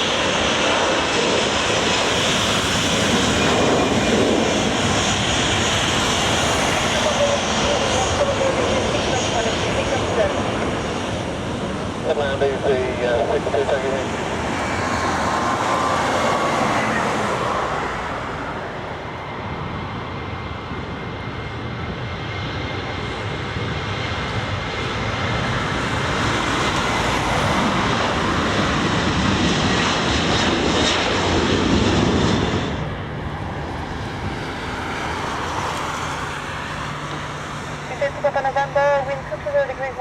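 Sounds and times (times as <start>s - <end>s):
jet engines roaring: 0.0s - 40.0s.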